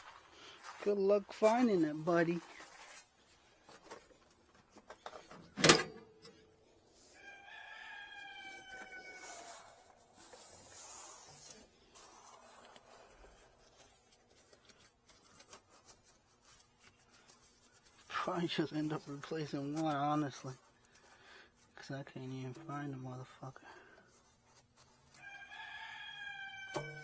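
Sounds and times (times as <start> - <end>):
hand tool clicks and rustles: 4.9 - 6.4
rooster crowing: 7.2 - 9.9, 25.2 - 27.0.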